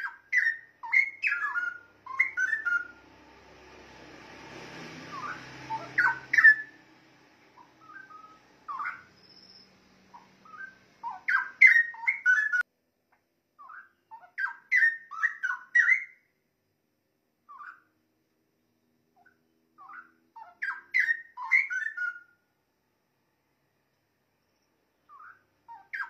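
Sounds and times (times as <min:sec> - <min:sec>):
bulbul warbling song: 0:00.0 - 0:03.0, 0:05.0 - 0:06.8, 0:07.6 - 0:12.6.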